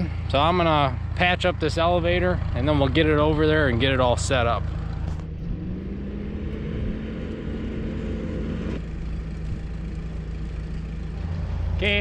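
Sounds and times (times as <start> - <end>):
engine running: 0.0 - 12.0
noisy rising tone: 4.6 - 11.9.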